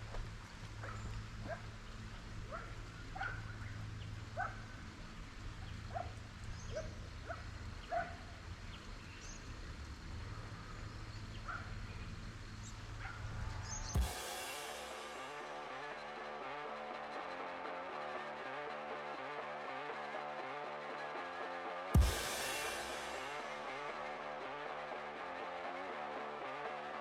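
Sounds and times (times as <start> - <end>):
dog barking faintly: 0.8 - 1.7, 2.4 - 3.6, 4.4 - 4.7, 5.9 - 8.3.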